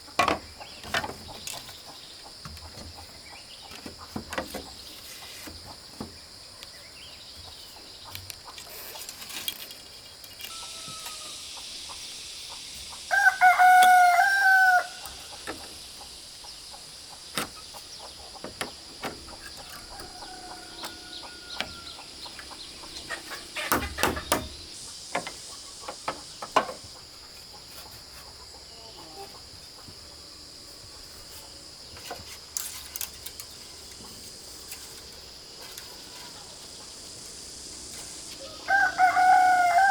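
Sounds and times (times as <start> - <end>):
rooster crowing: 10.5 - 11.5, 13.1 - 15.3, 19.6 - 22.4, 38.3 - 39.9
distant rooster crowing: 10.5 - 11.6, 13.1 - 15.4, 19.2 - 24.6, 38.2 - 39.9
sharp knocks: 23.6 - 25.4.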